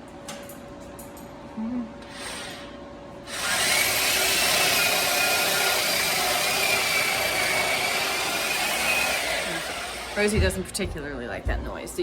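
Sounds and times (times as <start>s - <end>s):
electric drill whining: 2.1s - 10.3s.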